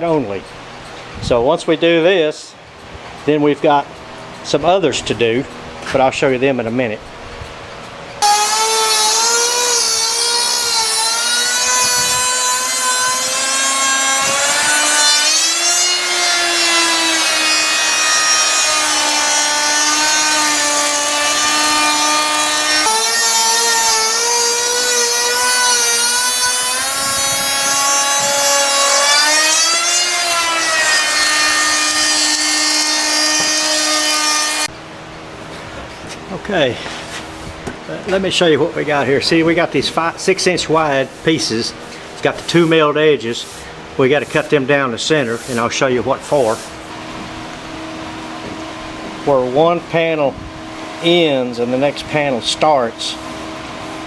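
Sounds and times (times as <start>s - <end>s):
router milling wood: 8.2s - 34.7s.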